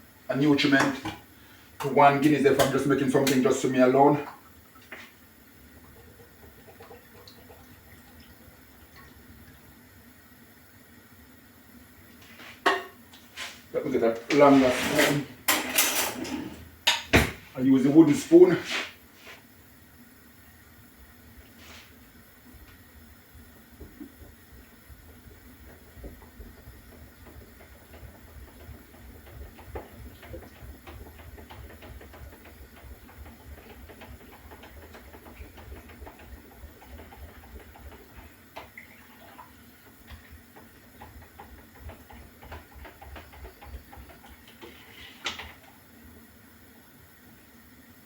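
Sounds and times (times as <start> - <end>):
liquid swishing: 23.8 - 45.6.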